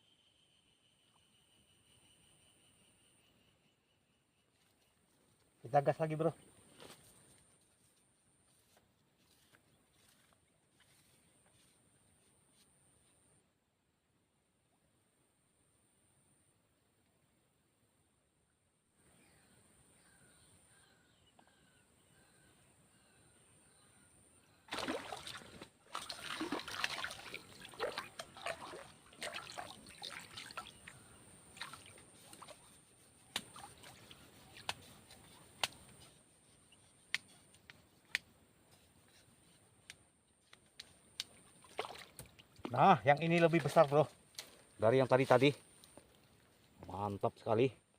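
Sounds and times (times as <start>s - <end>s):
fish splashing at water surface: 24.7s - 32.7s, 41.4s - 42.4s.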